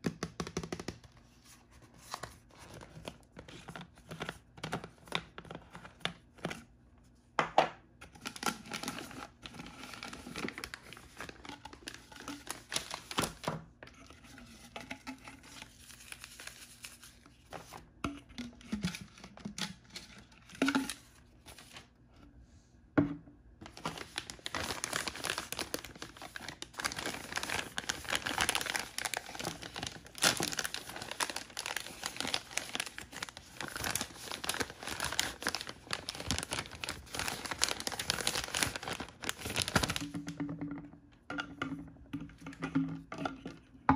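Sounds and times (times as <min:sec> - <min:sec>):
wrappers crinkling and tearing: 0:08.2 - 0:13.5, 0:15.7 - 0:17.8, 0:23.6 - 0:40.2.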